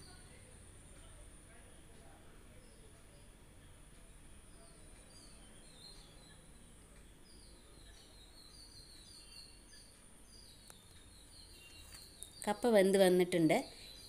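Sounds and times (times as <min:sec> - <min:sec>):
faint steady hiss: 0:00.0 - 0:14.0
faint high bird chirps: 0:04.5 - 0:14.0.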